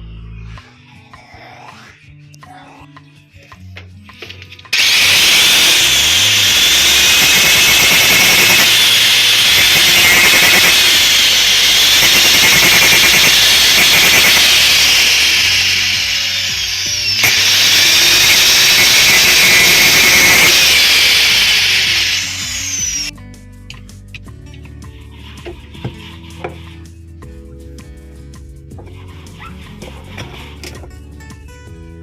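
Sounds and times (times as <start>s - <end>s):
power tool cutting: 4.7s - 23.1s.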